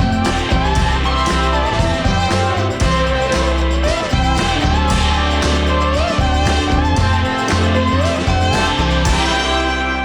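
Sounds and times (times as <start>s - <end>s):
guitar-led song: 0.0s - 10.0s.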